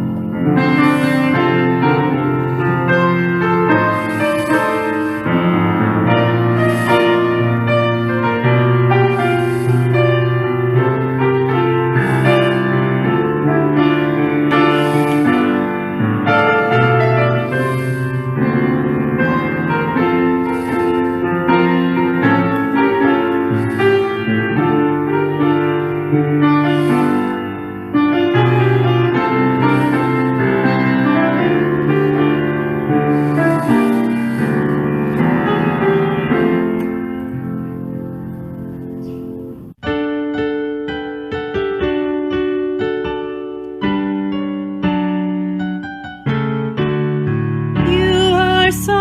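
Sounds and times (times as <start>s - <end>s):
slow solo piano music: 0.0s - 49.0s.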